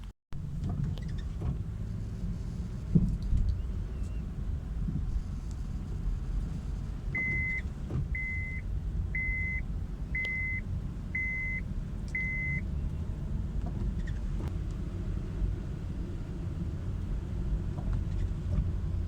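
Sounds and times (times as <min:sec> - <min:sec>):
car engine rumbling: 0:00.0 - 0:19.0
car warning chime beeping: 0:07.2 - 0:12.7.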